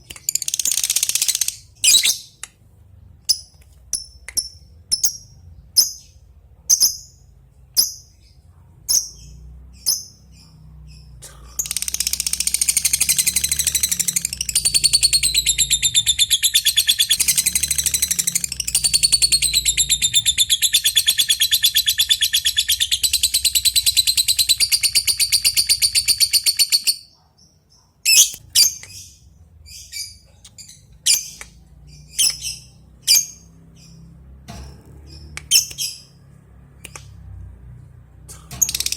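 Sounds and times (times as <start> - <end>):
bird sharp chirps: 7.8 - 34.1
bird fast chattering trill: 11.4 - 27.0.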